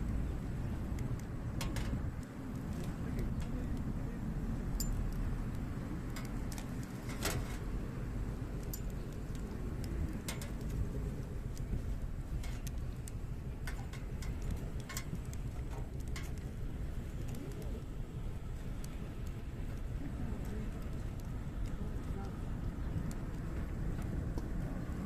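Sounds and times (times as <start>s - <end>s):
campfire crackling and popping: 0.0s - 25.0s
low steady rumble: 0.0s - 25.0s.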